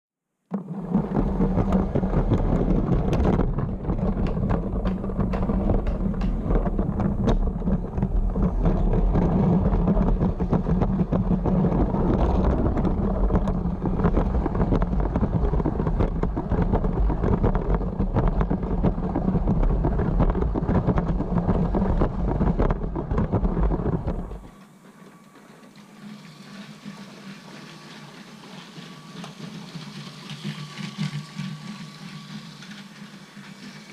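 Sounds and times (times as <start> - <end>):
wheels clicking over track: 0.5 - 33.9
toy train motor whir: 25.8 - 33.9.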